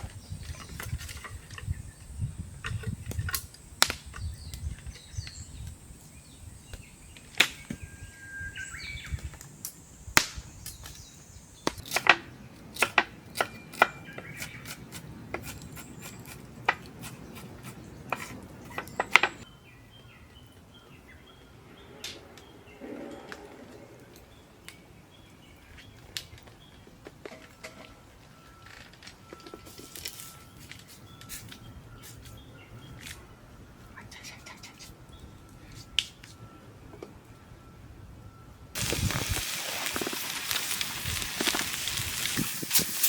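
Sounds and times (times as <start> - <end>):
birds chirping: 0.0 - 12.6, 13.3 - 27.0.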